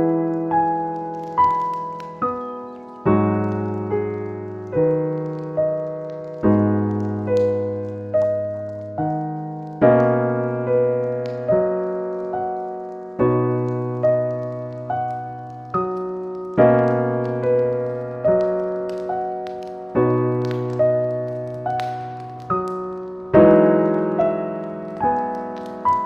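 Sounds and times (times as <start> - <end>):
gentle solo piano: 0.0 - 26.0.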